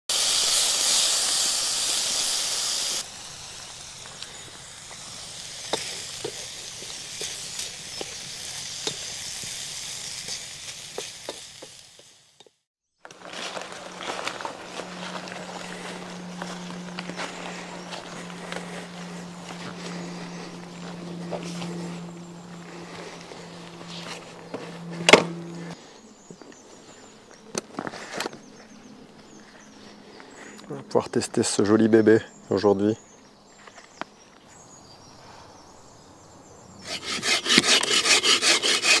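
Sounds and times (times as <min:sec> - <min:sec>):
food sizzling in a frying pan: 0:00.1 - 0:12.6
flying insect buzzing: 0:13.7 - 0:25.8.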